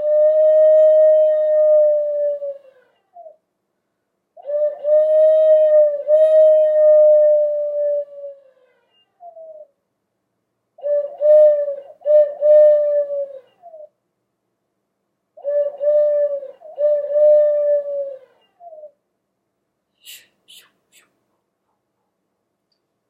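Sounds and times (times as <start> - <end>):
owl hooting: 0.0 - 3.4, 4.4 - 9.8, 10.8 - 14.0, 15.4 - 19.0, 20.0 - 21.1.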